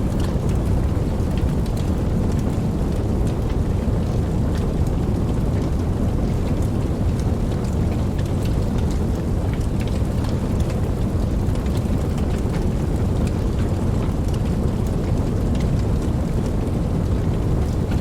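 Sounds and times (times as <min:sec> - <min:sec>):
campfire burning: 0:00.0 - 0:18.0
fire popping and crackling: 0:00.0 - 0:18.0.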